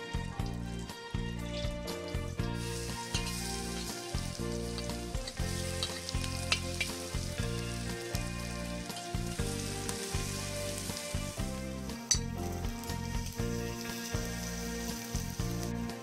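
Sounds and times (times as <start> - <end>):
background music: 0.0 - 16.0
shallots sizzling in hot oil: 0.0 - 16.0
spatula scraping wok: 1.6 - 12.3.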